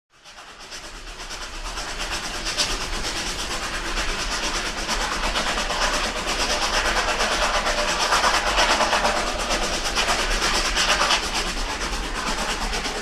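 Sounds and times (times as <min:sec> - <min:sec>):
model train rattling on track: 0:00.2 - 0:13.0.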